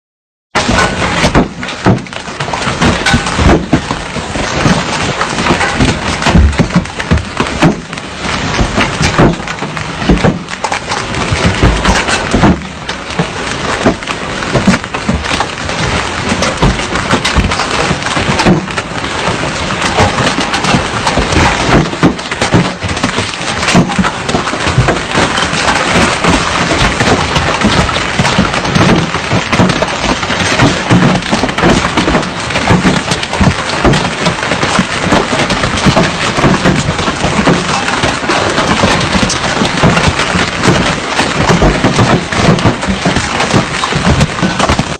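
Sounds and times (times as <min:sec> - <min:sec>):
heavy rain pouring: 0:00.5 - 0:44.9
rain spattering on a surface: 0:00.6 - 0:44.9.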